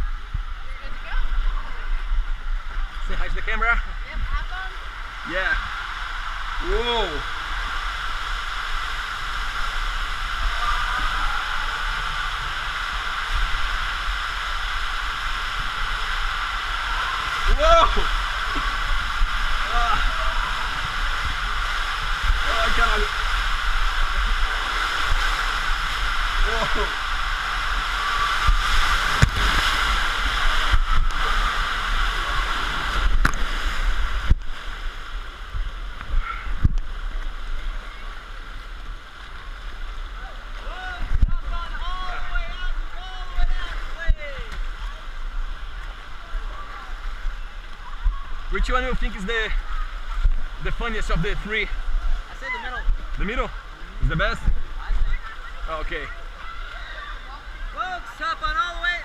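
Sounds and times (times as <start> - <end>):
water rushing down a tube slide: 0.0 - 59.0.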